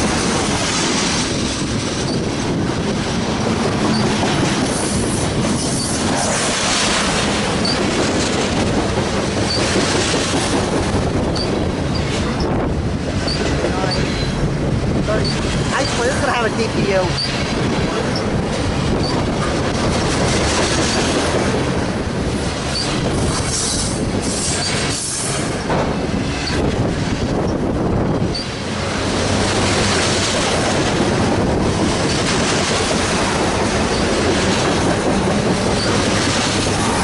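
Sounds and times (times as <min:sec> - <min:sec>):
freight train rumbling past: 0:00.0 - 0:37.0
high wheel squeaks: 0:07.6 - 0:07.9, 0:09.4 - 0:09.8, 0:13.3 - 0:14.4, 0:16.9 - 0:17.4, 0:22.7 - 0:25.2, 0:35.7 - 0:36.2.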